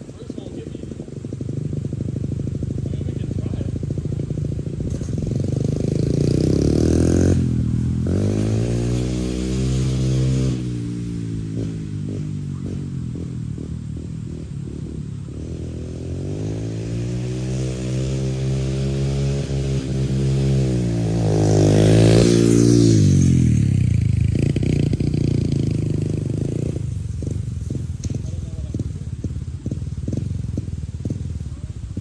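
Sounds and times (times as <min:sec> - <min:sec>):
pit bike engine revving: 0:00.0 - 0:32.0.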